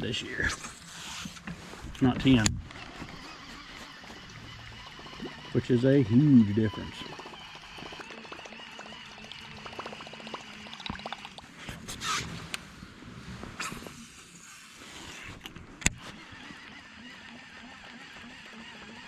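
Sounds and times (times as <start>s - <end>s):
water splashing and trickling: 5.0s - 11.6s.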